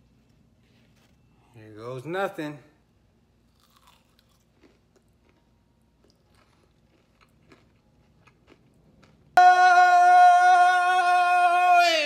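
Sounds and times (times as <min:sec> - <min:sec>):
crunching and chewing: 0:03.5 - 0:09.4
loud steady held note: 0:09.4 - 0:12.0.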